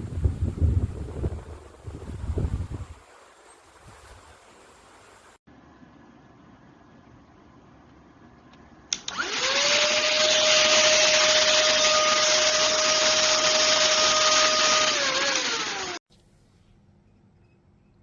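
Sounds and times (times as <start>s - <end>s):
vacuum cleaner switch click: 8.9s - 9.2s
vacuum cleaner motor whine: 9.1s - 16.0s.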